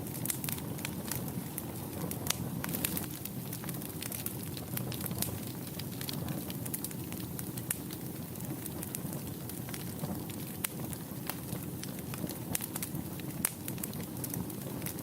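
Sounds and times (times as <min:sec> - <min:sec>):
burning wood crackling and popping: 0:00.0 - 0:15.0
low rumble of flames: 0:00.0 - 0:15.0.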